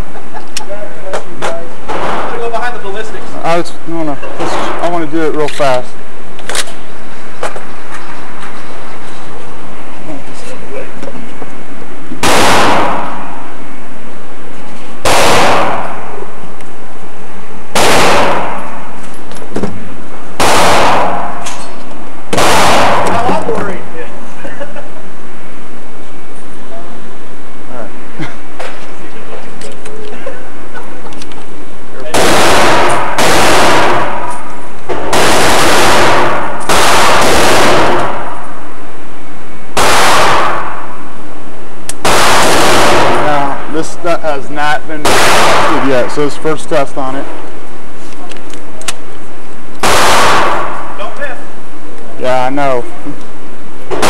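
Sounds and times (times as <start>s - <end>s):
loud gunshots with echo: 1.8s - 2.8s, 12.2s - 13.6s, 15.0s - 16.3s, 17.7s - 19.0s, 20.4s - 21.6s, 22.3s - 23.5s, 32.1s - 38.7s, 39.8s - 41.1s, 42.0s - 43.8s, 45.0s - 46.3s, 49.8s - 51.0s.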